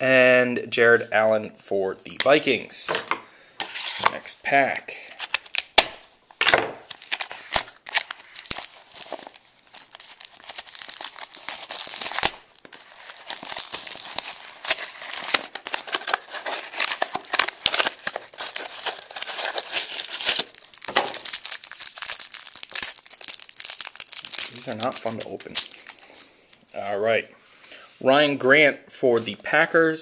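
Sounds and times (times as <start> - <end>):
wrapper crinkling and tearing: 5.1 - 5.9, 6.8 - 26.9.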